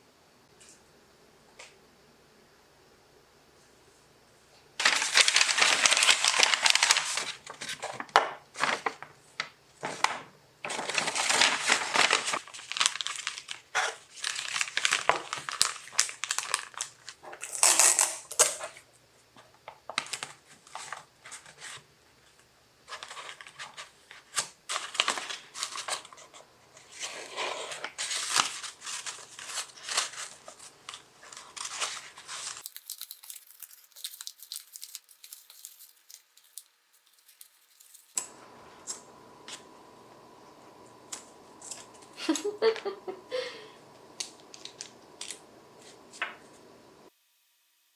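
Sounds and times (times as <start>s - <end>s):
crinkly material rustling: 4.8s - 17.4s, 22.9s - 43.2s, 44.0s - 47.1s.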